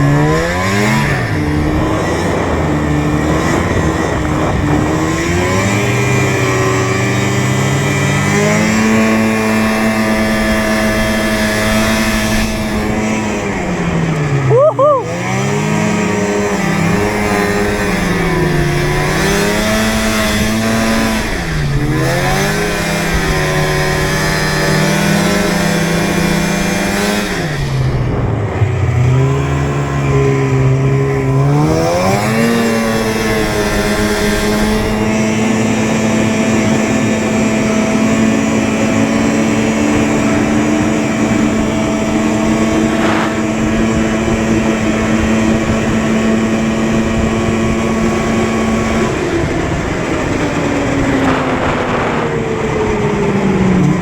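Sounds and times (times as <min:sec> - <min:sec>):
vehicle motor whining: 0:00.0 - 0:54.0
rush of noise: 0:38.4 - 0:54.0.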